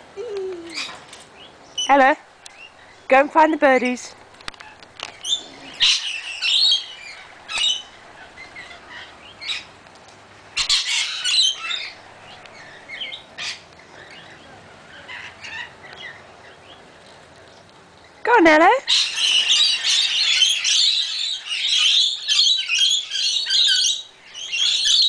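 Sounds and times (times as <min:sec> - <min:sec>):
parrots squawking: 0:04.6 - 0:09.7, 0:10.6 - 0:12.0, 0:14.9 - 0:16.2, 0:18.9 - 0:25.0.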